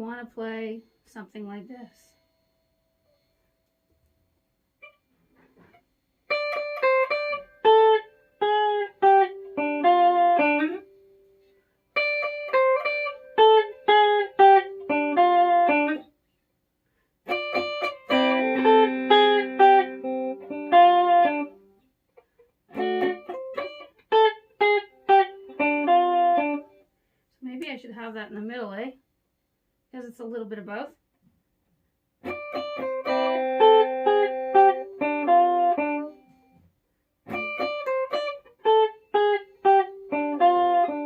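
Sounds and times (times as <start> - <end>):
electric ukulele riff: 6.3 - 11.2, 12.0 - 16.1, 17.3 - 21.7, 22.7 - 26.8, 32.2 - 36.4, 37.3 - 41.0.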